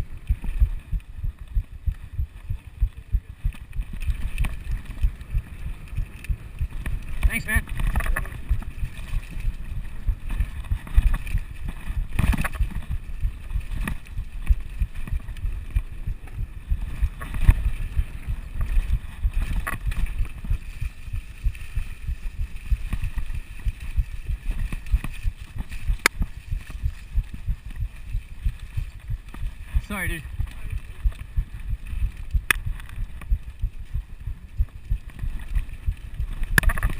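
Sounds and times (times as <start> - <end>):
mountain bike rumbling over rocks: 0.0 - 36.9
sharp clacks of bike frame: 2.6 - 29.6.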